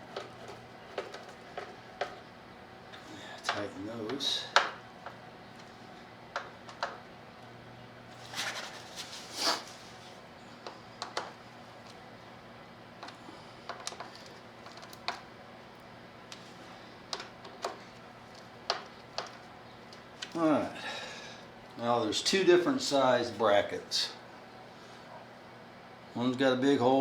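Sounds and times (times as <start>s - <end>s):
hand tools clicking and tapping: 0.0s - 2.2s, 3.4s - 5.7s, 6.3s - 7.0s, 10.6s - 11.4s, 18.6s - 20.0s.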